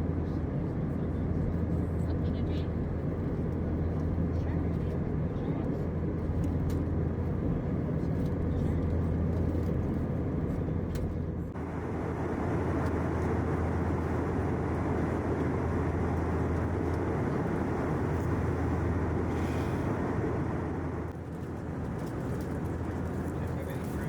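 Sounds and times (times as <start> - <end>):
airliner cabin rumble: 0.1 - 24.0.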